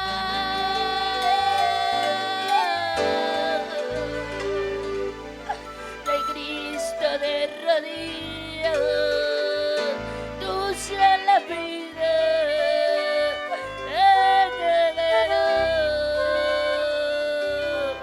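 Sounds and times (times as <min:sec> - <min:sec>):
band with steady bass line: 0:00.0 - 0:18.0
woman singing: 0:00.0 - 0:18.0.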